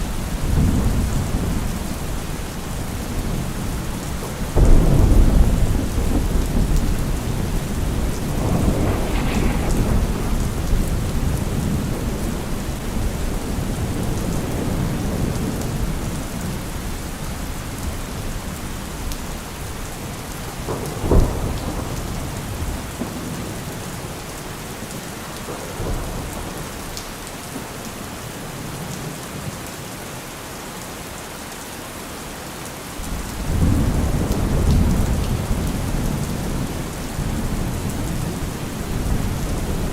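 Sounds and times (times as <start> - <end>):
steady rain: 0.0 - 39.9
thunder rumbling: 0.4 - 16.2
sharp thunder clap: 4.6 - 13.3.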